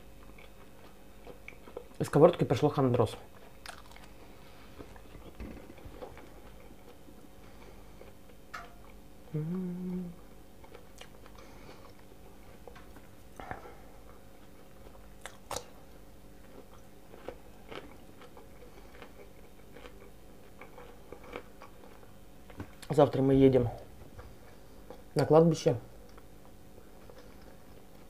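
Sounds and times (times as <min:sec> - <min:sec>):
person chewing: 0:00.2 - 0:02.0, 0:03.3 - 0:22.9
crunching bites: 0:03.6 - 0:04.2
person humming: 0:09.2 - 0:10.3.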